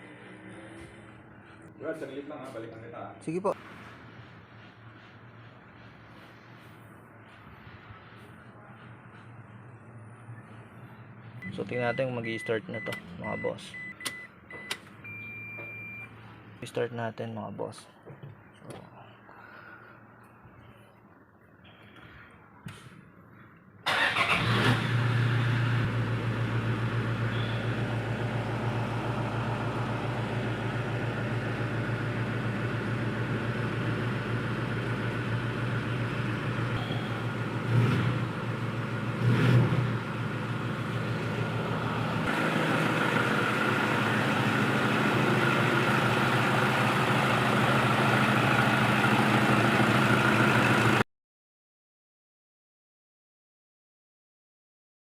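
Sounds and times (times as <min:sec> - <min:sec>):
car engine starting and running: 0:11.2 - 0:16.2, 0:23.8 - 0:51.0
engine revving: 0:23.9 - 0:34.2, 0:35.4 - 0:51.0.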